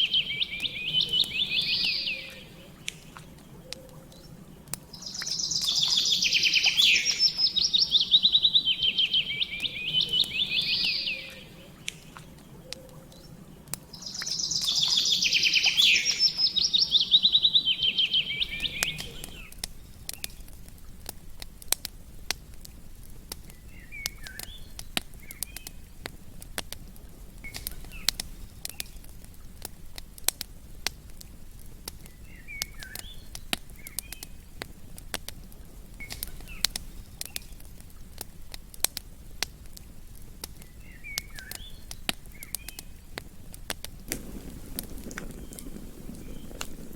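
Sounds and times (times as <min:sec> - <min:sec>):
songbird trilling: 0:00.0 - 0:13.3, 0:14.0 - 0:19.6, 0:32.1 - 0:34.4, 0:40.6 - 0:43.0, 0:44.2 - 0:46.9
faint bird chirps: 0:00.0 - 0:20.4, 0:23.4 - 0:26.0, 0:31.3 - 0:35.0, 0:35.9 - 0:37.6, 0:39.9 - 0:43.2, 0:44.1 - 0:46.9
campfire crackling and popping: 0:00.0 - 0:46.9.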